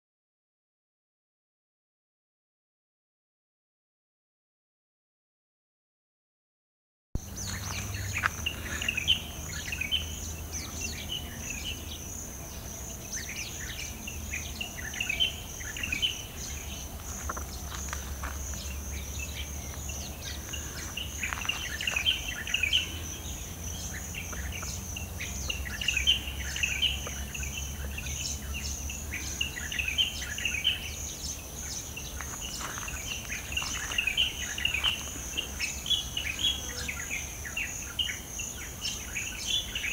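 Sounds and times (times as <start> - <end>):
birds chirping: 7.2 - 39.9
insects trilling: 7.2 - 39.9.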